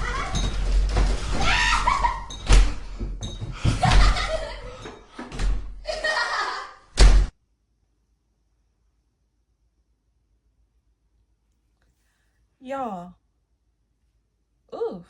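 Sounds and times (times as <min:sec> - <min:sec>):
laughter: 0:01.7 - 0:02.4, 0:03.6 - 0:05.0, 0:05.8 - 0:06.9
voices: 0:12.6 - 0:13.1.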